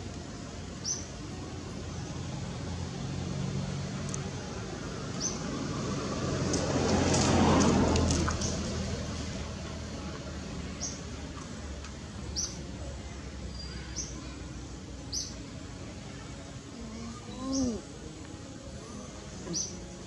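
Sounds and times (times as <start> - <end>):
bird chirping: 0.7 - 1.4, 12.2 - 12.8, 16.4 - 20.0.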